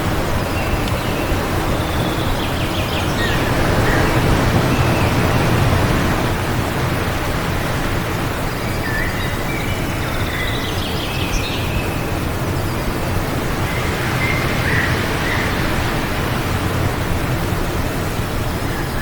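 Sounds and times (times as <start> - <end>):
wind: 0.0 - 19.0.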